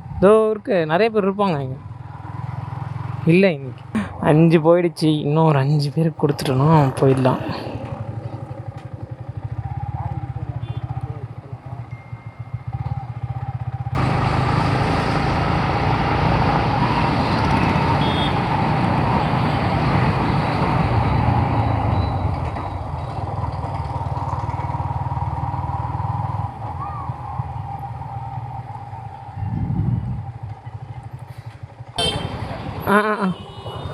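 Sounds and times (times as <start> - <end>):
motorcycle engine running: 7.6 - 33.9.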